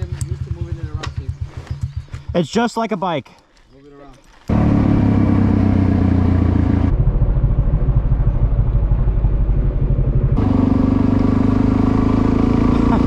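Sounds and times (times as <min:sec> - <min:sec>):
motorcycle engine running: 0:00.0 - 0:02.6, 0:04.5 - 0:13.0.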